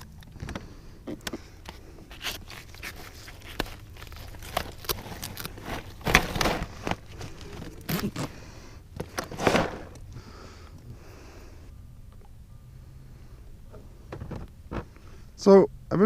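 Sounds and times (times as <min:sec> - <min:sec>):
scraping and rustling: 0:00.4 - 0:08.4, 0:09.0 - 0:10.1.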